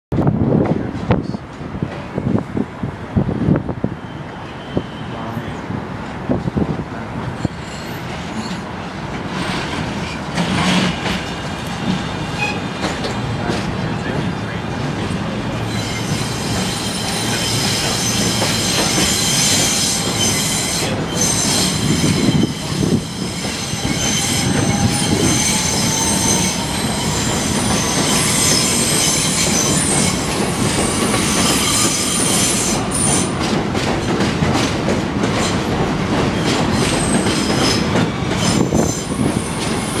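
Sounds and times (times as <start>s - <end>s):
subway train on rails: 0.1s - 40.0s
wheels squealing and clacking: 15.7s - 34.1s.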